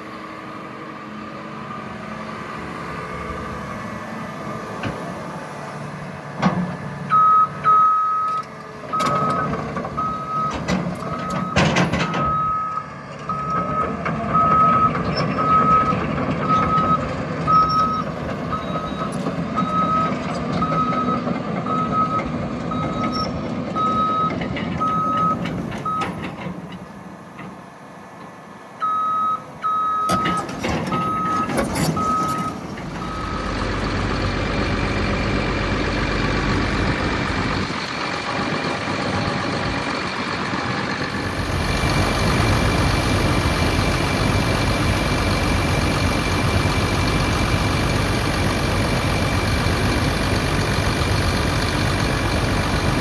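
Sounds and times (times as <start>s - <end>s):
excavator diesel engine running: 0.0s - 53.0s
travel alarm beeping: 7.1s - 8.4s, 18.6s - 19.1s, 28.8s - 33.5s
loud knocks and clanks: 9.0s - 12.4s.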